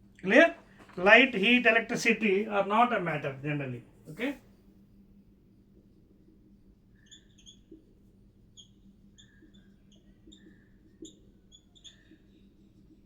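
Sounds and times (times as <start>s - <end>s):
faint high chirps: 8.5s - 12.6s.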